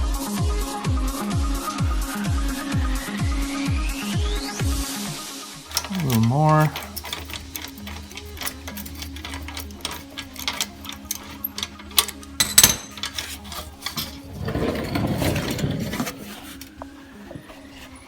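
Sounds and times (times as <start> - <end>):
ratchet wrench clicking: 5.7 - 14.3
scraping and rustling: 5.7 - 18.0.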